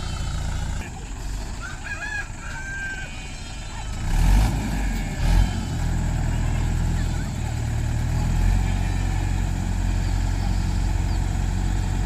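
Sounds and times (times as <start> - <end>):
tractor diesel engine running: 0.0 - 12.0
rooster crowing: 1.5 - 4.2.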